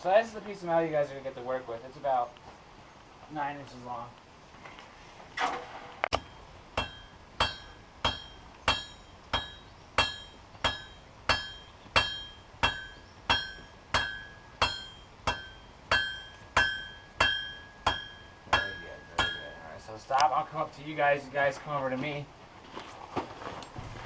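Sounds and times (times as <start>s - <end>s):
hammer striking steel on anvil: 6.1s - 19.8s.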